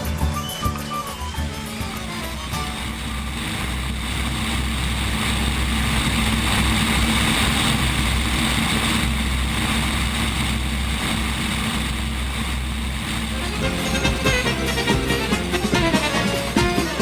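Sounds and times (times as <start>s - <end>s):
propeller airplanes passing overhead: 0.0s - 17.0s.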